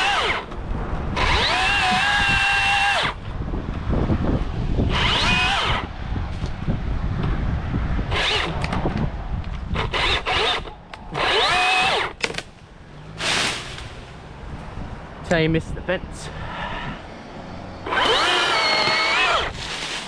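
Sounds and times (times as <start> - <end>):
electric chainsaw revving: 0.0 - 0.5, 1.2 - 3.2, 4.9 - 5.9, 8.1 - 8.8, 9.7 - 12.2, 17.8 - 19.6.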